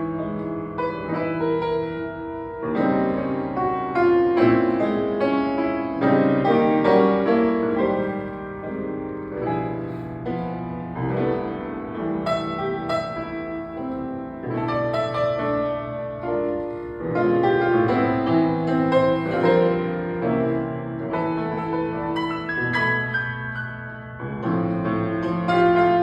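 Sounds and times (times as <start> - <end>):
piano playing chords and melody: 0.0 - 26.0.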